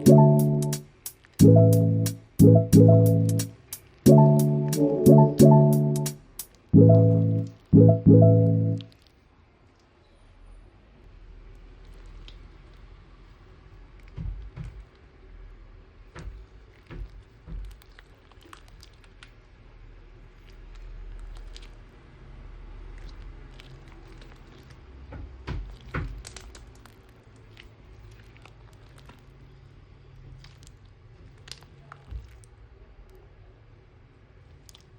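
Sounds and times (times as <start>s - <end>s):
slime squishing by hand: 20.4s - 21.9s, 22.9s - 33.2s, 34.4s - 34.9s.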